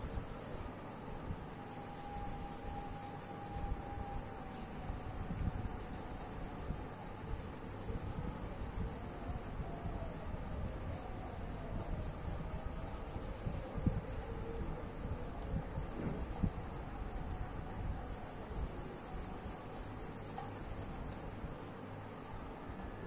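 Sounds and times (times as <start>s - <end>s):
colouring strokes on paper: 0.0s - 0.8s, 1.4s - 22.5s.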